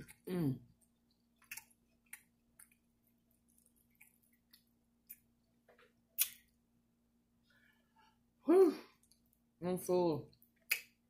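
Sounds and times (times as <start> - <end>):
quiet chewing: 0.0 - 6.6, 8.9 - 9.5.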